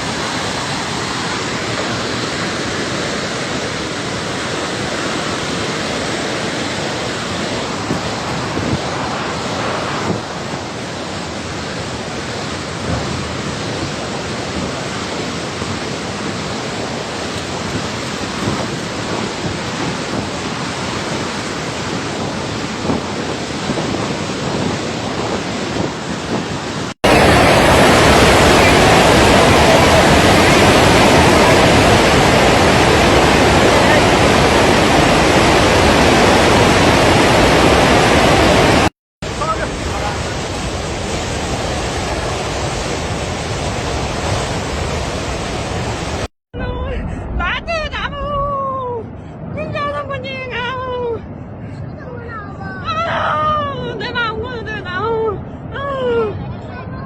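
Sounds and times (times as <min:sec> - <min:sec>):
swollen river rushing: 0:00.0 - 0:47.5.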